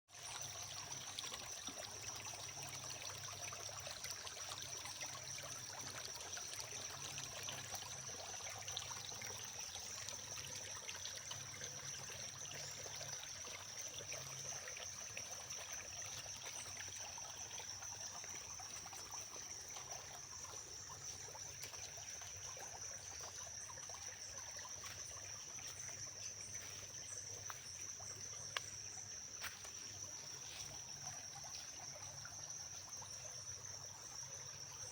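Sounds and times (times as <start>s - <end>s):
stream trickling: 0.1s - 34.9s.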